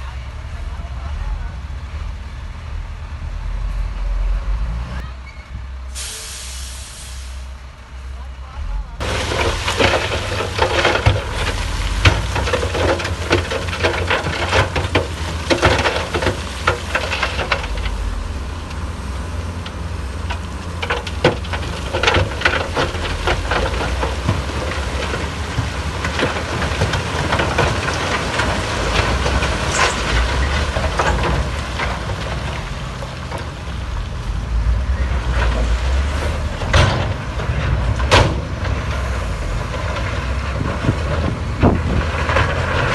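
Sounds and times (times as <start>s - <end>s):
heavy machine diesel rumble: 0.0s - 42.9s
clattering and cracking: 9.0s - 18.8s, 19.6s - 34.3s, 35.2s - 42.9s.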